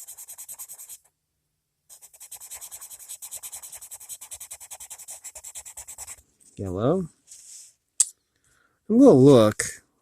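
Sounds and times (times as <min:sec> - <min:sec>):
pencil scribbling on paper: 0:00.0 - 0:01.1, 0:01.9 - 0:06.2.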